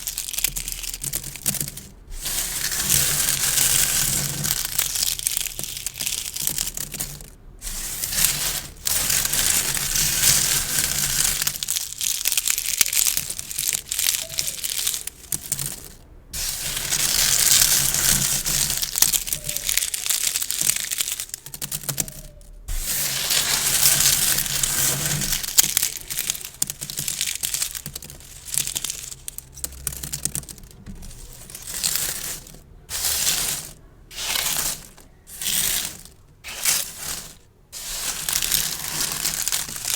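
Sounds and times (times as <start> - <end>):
gift bows crinkling: 0.0 - 39.9.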